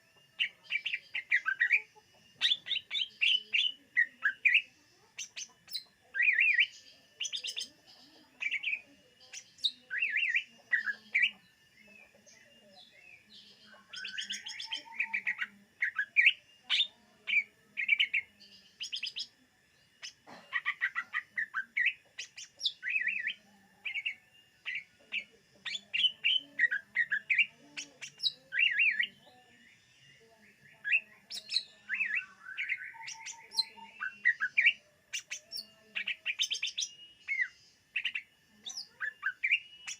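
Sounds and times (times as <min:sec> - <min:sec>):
bird singing whistled phrases: 0:30.8 - 0:39.9.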